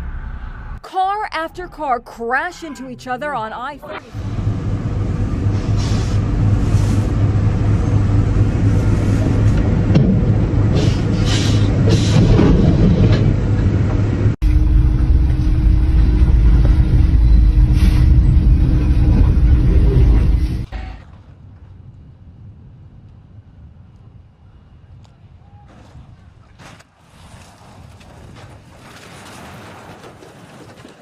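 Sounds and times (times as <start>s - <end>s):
deep vehicle rumble: 4.1s - 21.0s.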